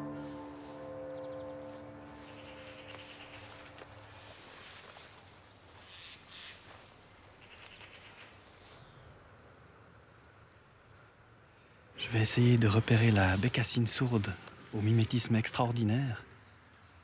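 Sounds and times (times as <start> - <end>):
small bird calling: 2.2 - 6.7.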